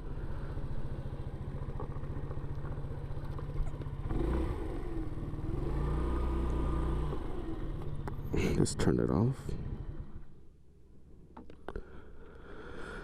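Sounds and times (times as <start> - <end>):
scooter engine puttering: 0.1 - 8.4.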